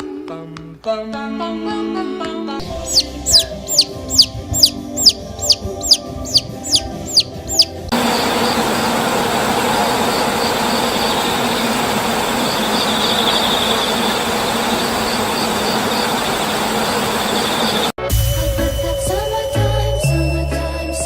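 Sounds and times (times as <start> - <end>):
faint steady hum: 2.8 - 18.0
loud machine rushing noise: 2.8 - 18.0.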